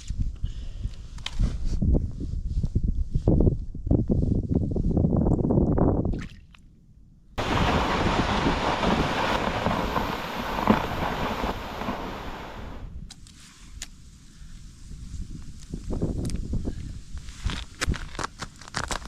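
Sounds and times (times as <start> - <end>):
blizzard wind rushing: 7.4 - 13.0.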